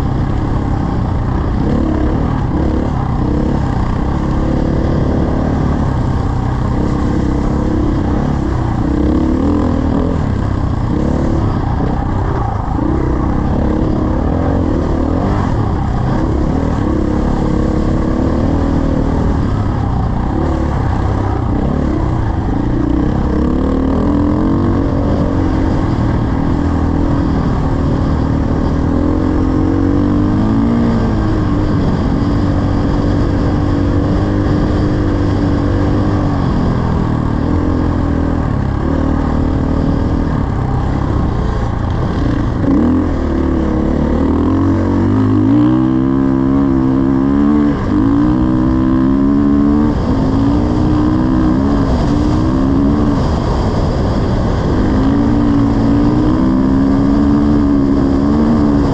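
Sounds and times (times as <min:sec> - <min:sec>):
dirt bike engine running: 0:00.0 - 0:58.9
wind rumble on microphone: 0:00.0 - 0:58.9.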